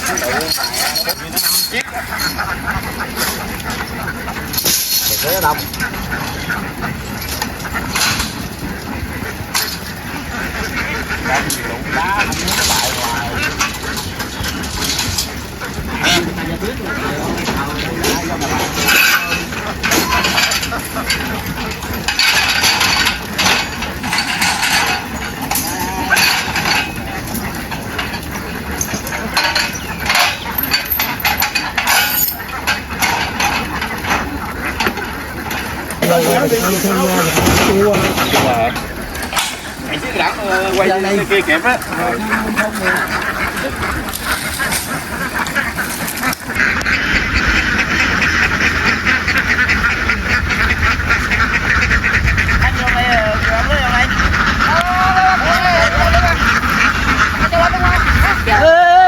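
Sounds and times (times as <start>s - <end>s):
knocks and clinks: 0.0s - 2.6s, 4.5s - 5.9s, 17.4s - 36.1s
flock of ducks quacking: 0.0s - 59.0s.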